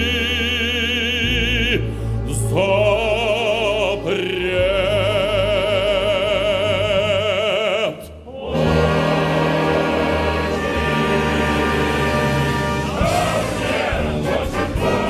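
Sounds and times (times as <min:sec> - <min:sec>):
orchestral accompaniment: 0:08.4 - 0:15.0.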